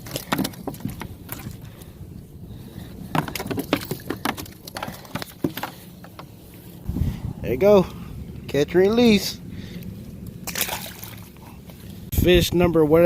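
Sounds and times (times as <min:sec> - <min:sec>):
fishing gear clicking and rattling: 0:00.0 - 0:01.9, 0:03.0 - 0:06.6.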